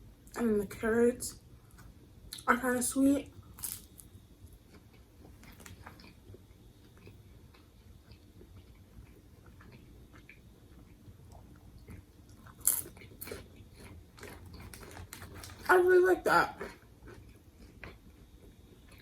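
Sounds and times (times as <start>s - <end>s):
chewing with wet crunching: 3.5s - 15.7s, 16.6s - 19.0s.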